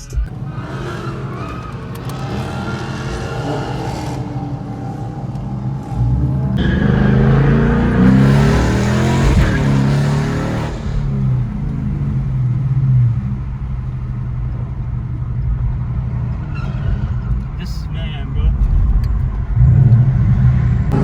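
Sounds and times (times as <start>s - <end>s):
car engine accelerating past: 0.4s - 17.5s
engine running steadily: 4.0s - 16.5s.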